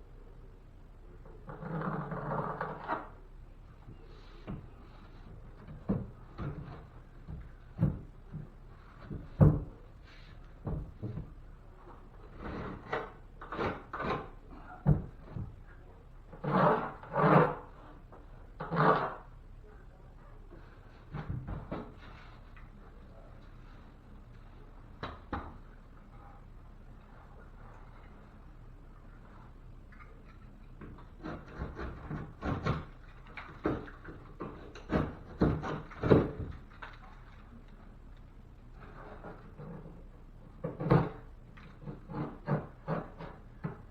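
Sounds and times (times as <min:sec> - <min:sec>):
drywall scraping and rubbing: 0:01.4 - 0:03.2, 0:03.9 - 0:15.6, 0:16.2 - 0:19.4, 0:20.6 - 0:24.7, 0:29.2 - 0:37.3, 0:38.7 - 0:43.9
wooden knocks and clunks: 0:05.4 - 0:09.9, 0:10.6 - 0:11.4, 0:21.1 - 0:22.2.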